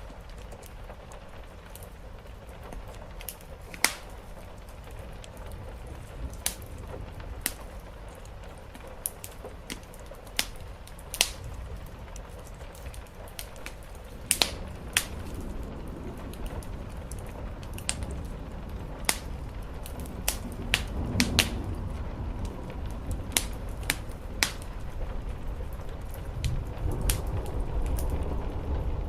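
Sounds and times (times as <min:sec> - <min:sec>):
soft rain hiss: 0:00.0 - 0:29.0
wood fire crackling: 0:00.0 - 0:29.0.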